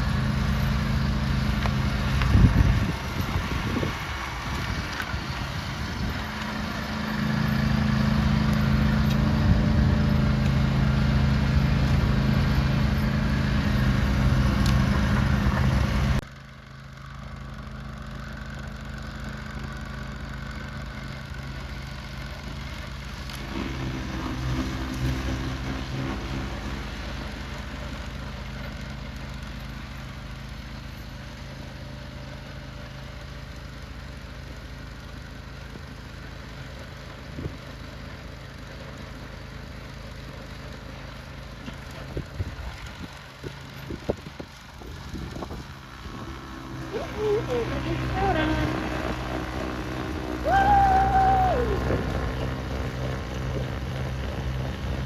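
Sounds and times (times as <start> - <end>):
engine humming: 0.0 - 16.3, 19.8 - 33.9, 36.8 - 55.0.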